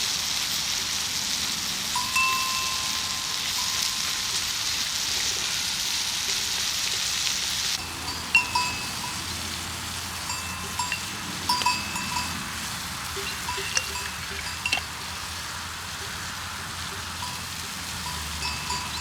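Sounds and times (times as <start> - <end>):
steady hiss: 0.0 - 19.0
bell-like metallic clinks: 10.2 - 12.4, 13.2 - 14.9, 18.0 - 19.0.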